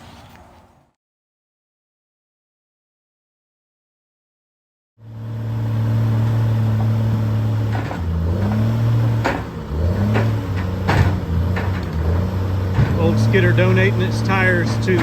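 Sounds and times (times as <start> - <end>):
engine running: 5.0 - 15.0.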